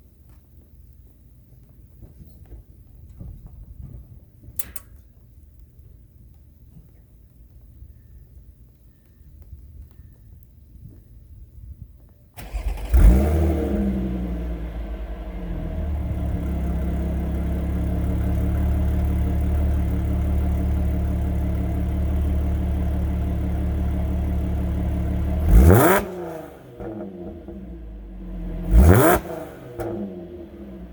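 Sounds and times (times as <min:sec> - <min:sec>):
car engine cold start and idle: 0:12.4 - 0:30.9
engine rev: 0:12.4 - 0:30.9.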